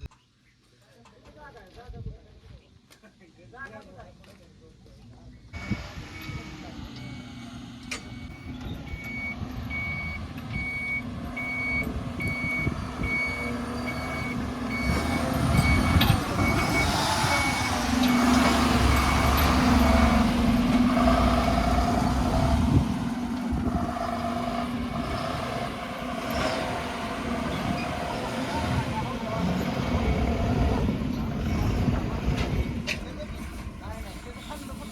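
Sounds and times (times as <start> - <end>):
reversing alarm beeping: 5.6 - 20.3
diesel engine running: 5.6 - 34.9.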